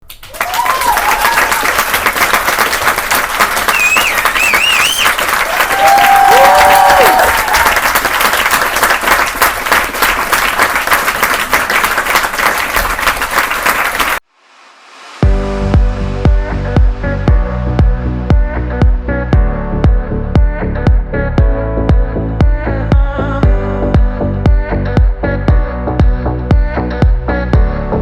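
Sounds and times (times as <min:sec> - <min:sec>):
crowd applauding: 0:00.0 - 0:14.2
crowd cheering: 0:00.0 - 0:14.2
warbling whistle: 0:03.7 - 0:05.2.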